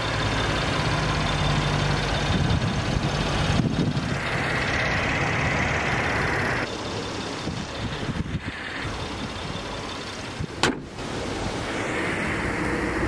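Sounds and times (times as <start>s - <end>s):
car engine idling: 0.0s - 13.0s
steady high hiss: 4.1s - 13.0s.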